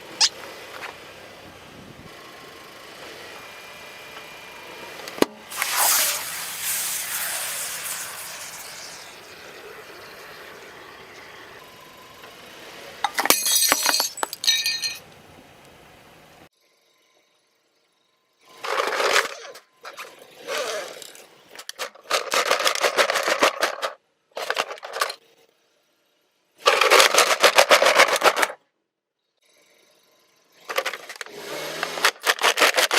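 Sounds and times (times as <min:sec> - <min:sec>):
hissing rush: 0:05.5 - 0:11.1
crunching and breaking glass: 0:13.1 - 0:15.1.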